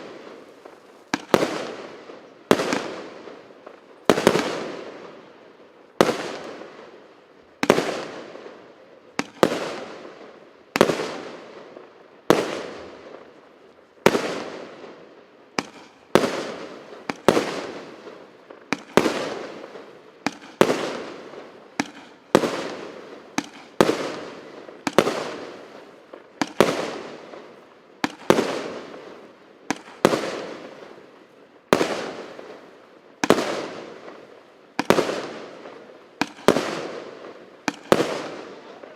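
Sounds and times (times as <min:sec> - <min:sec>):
firework bangs: 0:00.0 - 0:05.1, 0:14.0 - 0:31.0, 0:31.7 - 0:38.9.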